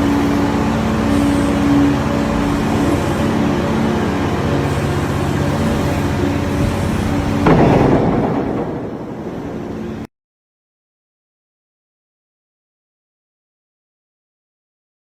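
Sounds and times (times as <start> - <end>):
excavator diesel engine: 0.0 - 10.1
loud crash: 7.4 - 10.1.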